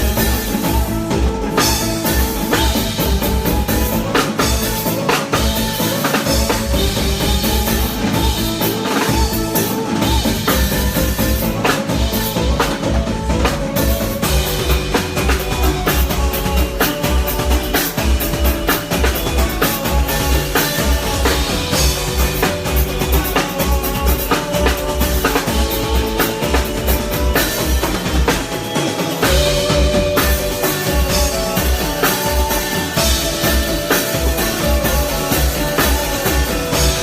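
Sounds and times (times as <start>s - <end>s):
pulsing bass line: 0.0s - 28.6s
drum kit beat: 0.0s - 37.0s
live band playing: 0.0s - 37.0s.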